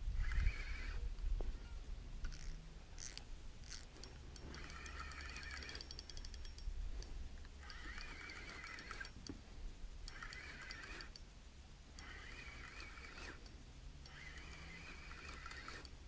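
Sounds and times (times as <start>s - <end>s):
fishing reel being cranked: 0.2s - 1.0s, 2.3s - 6.7s, 7.6s - 9.2s, 10.0s - 11.2s, 12.0s - 16.0s.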